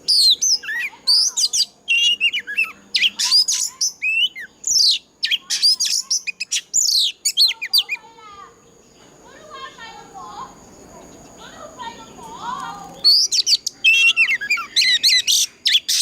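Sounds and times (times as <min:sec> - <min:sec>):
bird singing whistles and trills: 0:00.0 - 0:08.2, 0:12.1 - 0:16.0.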